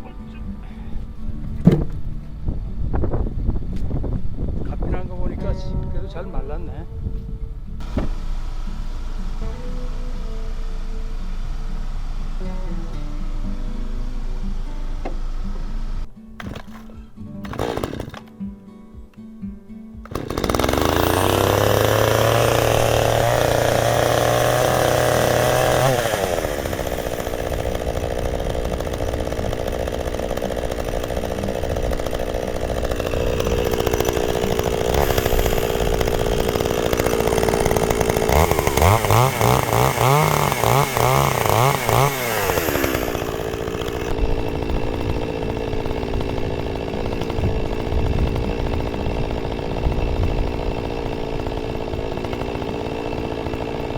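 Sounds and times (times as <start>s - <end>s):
chainsaw cutting logs: 1.6s - 2.1s, 7.8s - 19.1s, 19.9s - 53.9s.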